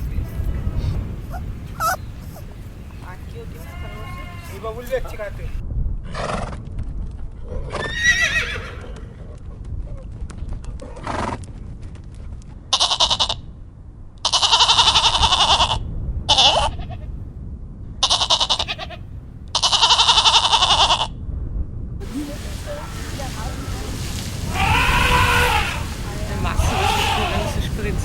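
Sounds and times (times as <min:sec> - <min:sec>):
farm animal bleating: 0:01.3 - 0:05.5, 0:12.7 - 0:13.4, 0:14.2 - 0:17.0, 0:18.0 - 0:19.0, 0:19.6 - 0:21.1, 0:22.0 - 0:28.0.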